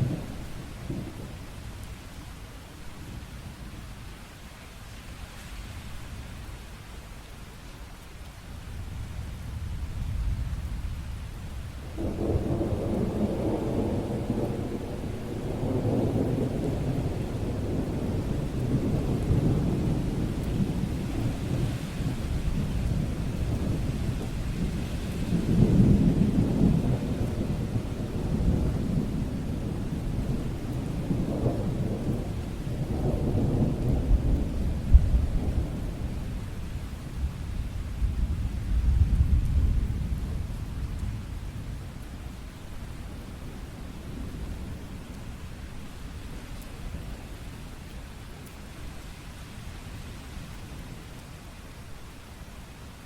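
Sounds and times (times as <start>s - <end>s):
rain falling: 0.0s - 53.0s
thunder rumbling: 8.8s - 47.4s.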